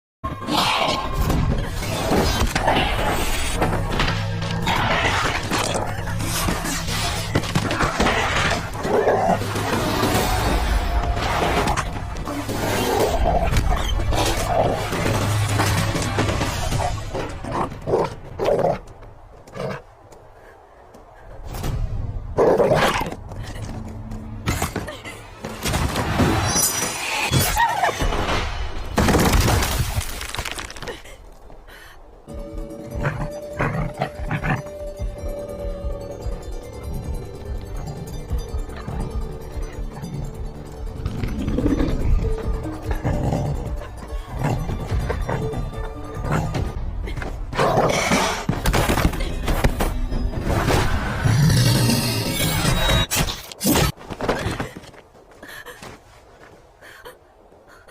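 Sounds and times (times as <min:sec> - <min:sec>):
dramatic background music: 0:00.2 - 0:18.9, 0:21.4 - 0:29.4, 0:32.0 - 0:53.2
crashing and shattering effects: 0:25.6 - 0:31.0
background music with pulsing beats: 0:32.3 - 0:47.0
wolves snarling and growling: 0:41.2 - 0:46.8.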